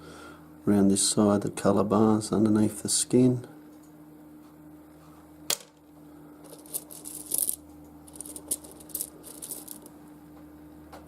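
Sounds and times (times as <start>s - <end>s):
stones clicking and rattling: 6.5s - 9.9s.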